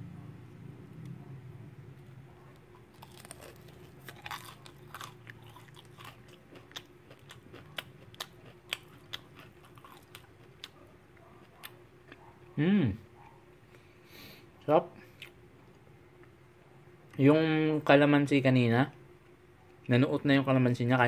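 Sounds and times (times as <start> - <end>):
crunchy fried chicken being chewed: 1.9 - 12.6.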